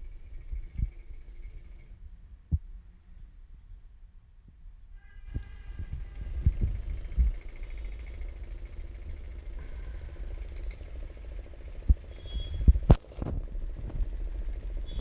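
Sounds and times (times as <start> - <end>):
small motor rattling: 0.0 - 2.1, 5.4 - 15.0.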